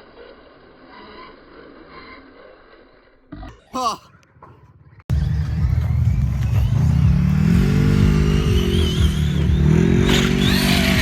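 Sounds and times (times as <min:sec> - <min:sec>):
rc truck motor revving: 0:00.0 - 0:03.3, 0:06.7 - 0:11.0.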